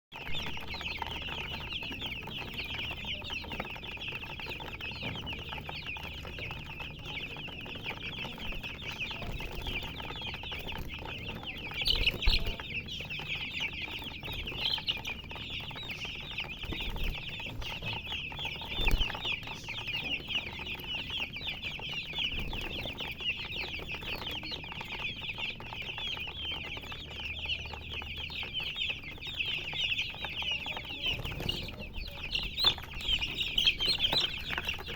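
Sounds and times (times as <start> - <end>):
baby chicks chirping: 0.1 - 34.9.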